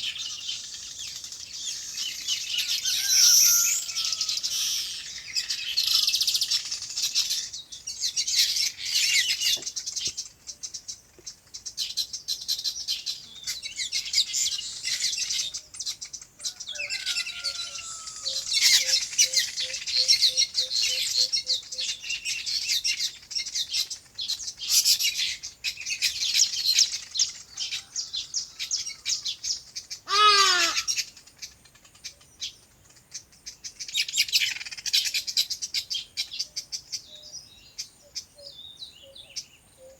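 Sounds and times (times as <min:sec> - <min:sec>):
small birds chirping chorus: 0:00.0 - 0:39.9
loud falling bird call: 0:30.1 - 0:31.0.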